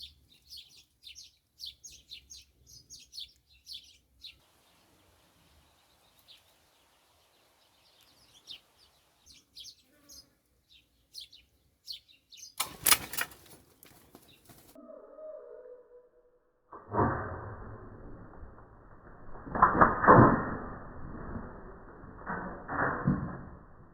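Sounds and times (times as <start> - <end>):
songbirds chirping: 0.0 - 15.9.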